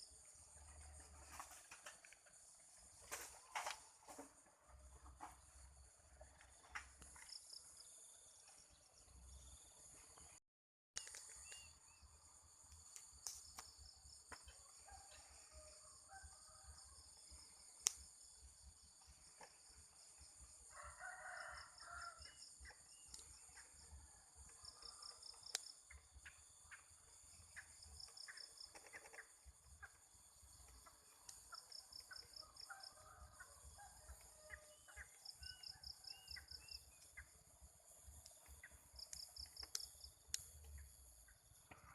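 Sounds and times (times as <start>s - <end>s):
insects trilling: 11.0s - 41.9s
distant rooster crowing: 14.6s - 17.2s, 20.4s - 22.6s, 32.0s - 36.8s.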